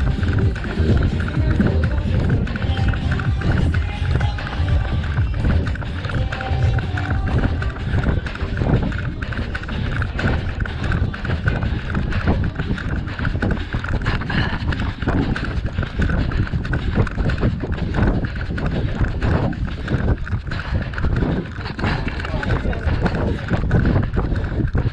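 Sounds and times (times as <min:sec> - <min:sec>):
running footsteps: 0:00.0 - 0:24.9
wind rumble on microphone: 0:00.0 - 0:24.9.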